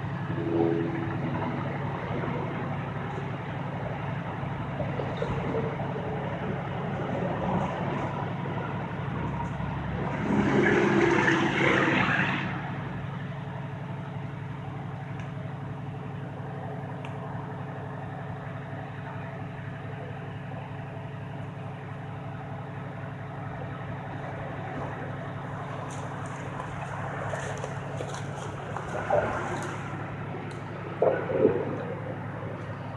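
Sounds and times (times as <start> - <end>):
rush of noise: 0.0 - 13.9
vehicle engine idling: 0.0 - 32.9.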